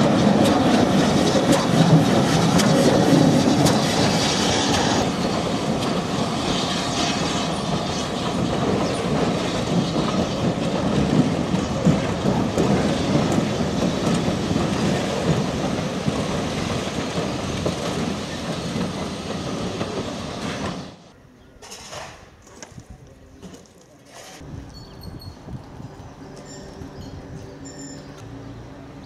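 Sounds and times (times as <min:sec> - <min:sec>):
train wheels clattering over rail joints: 0:00.0 - 0:21.0.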